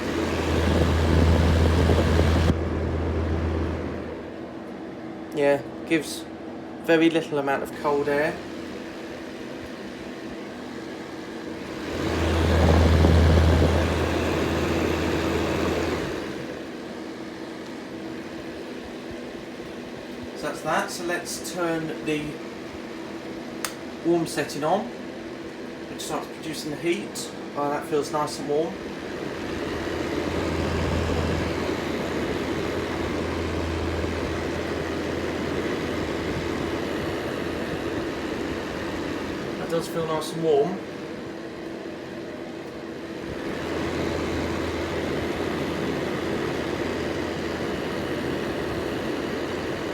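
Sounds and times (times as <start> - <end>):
low hum: 0.0 - 4.4, 29.4 - 39.6
fan heater humming: 0.0 - 49.9.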